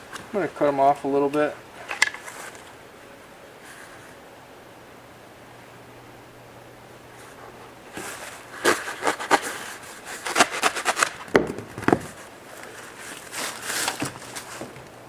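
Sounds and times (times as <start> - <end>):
foam noodles clicking and knocking: 7.9 - 15.0.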